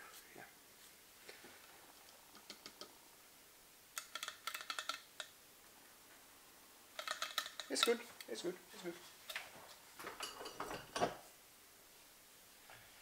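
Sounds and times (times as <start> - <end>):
small hard objects clicking: 4.0 - 5.4, 7.0 - 8.3.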